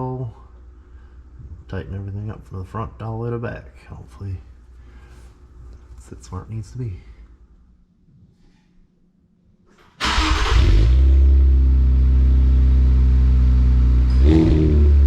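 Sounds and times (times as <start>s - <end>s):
car engine starting and idling: 10.0s - 15.0s.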